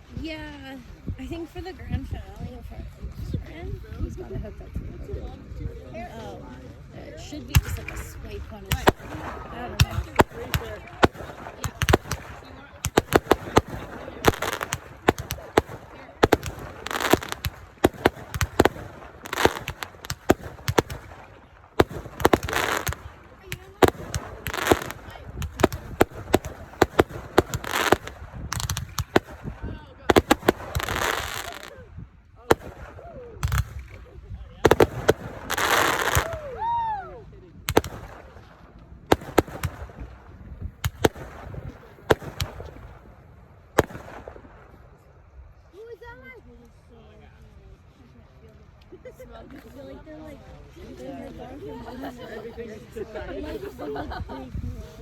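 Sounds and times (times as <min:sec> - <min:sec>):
fireworks bangs: 0:07.3 - 0:31.8, 0:32.4 - 0:36.8, 0:37.7 - 0:45.0
fireworks crackle: 0:07.4 - 0:36.8, 0:37.7 - 0:45.1.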